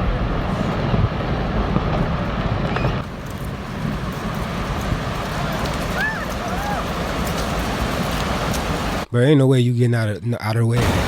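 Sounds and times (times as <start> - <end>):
glacier collapsing into sea: 0.9 - 9.1, 10.8 - 11.0.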